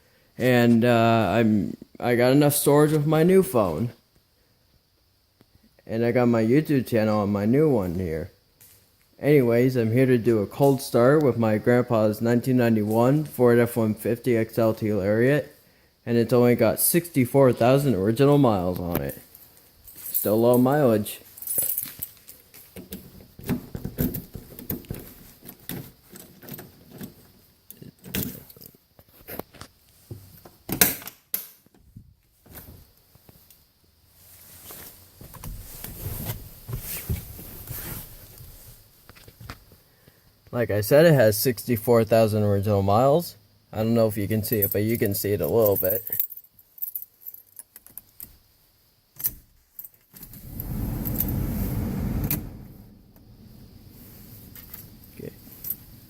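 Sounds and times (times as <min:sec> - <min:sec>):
keys jangling: 0:21.4 - 0:22.5.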